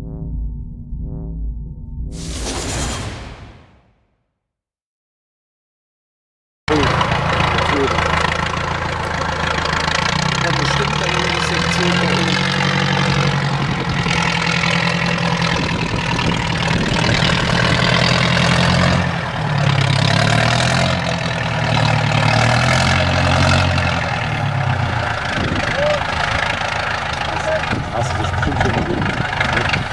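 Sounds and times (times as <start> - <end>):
truck diesel engine running: 6.7 - 29.9.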